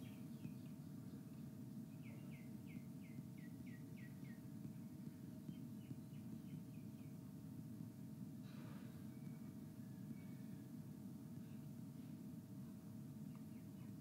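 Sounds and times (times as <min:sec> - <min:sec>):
bird chirping: 0:00.0 - 0:07.2, 0:13.2 - 0:14.0
faint hum: 0:00.0 - 0:14.0.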